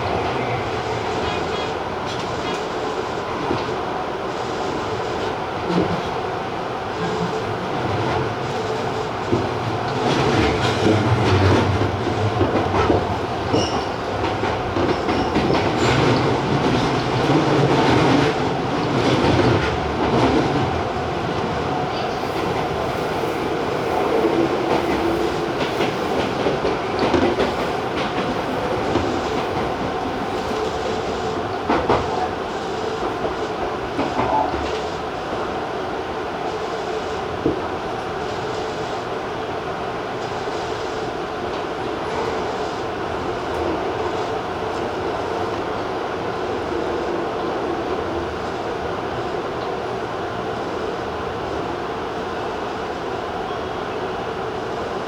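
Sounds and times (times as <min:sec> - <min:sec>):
train wheels clickety-clack: 0:00.0 - 0:35.6, 0:36.4 - 0:39.2, 0:40.1 - 0:51.7
wheel squeal: 0:13.5 - 0:14.0.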